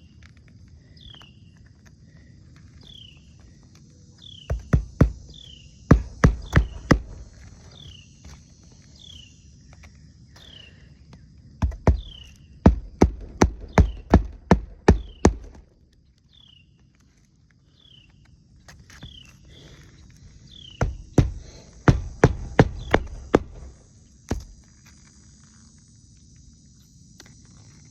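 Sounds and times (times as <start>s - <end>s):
hammer strikes on a roof: 4.5s - 7.4s, 11.6s - 15.6s, 20.8s - 24.6s.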